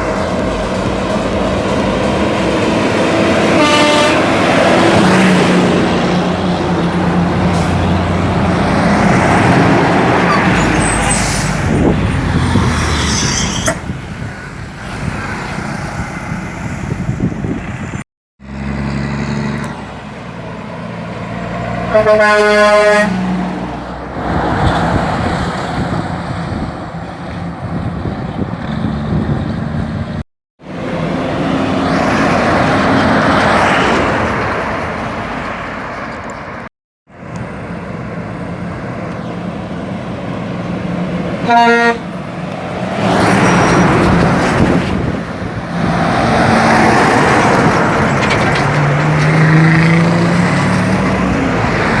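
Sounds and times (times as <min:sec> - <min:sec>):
heavy truck engine: 0:00.0 - 0:52.0
road and traffic noise: 0:00.0 - 0:52.0
truck air horn blast: 0:03.2 - 0:05.6, 0:21.9 - 0:23.3, 0:41.4 - 0:42.1.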